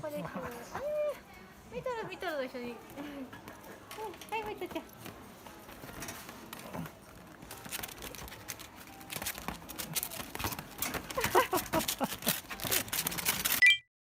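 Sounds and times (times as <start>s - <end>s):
puppy claws clicking on hard floor: 3.4s - 13.6s.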